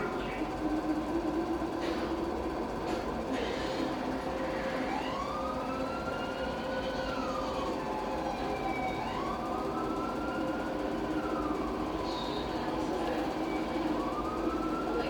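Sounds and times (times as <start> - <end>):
emergency siren wailing: 4.1 - 15.0.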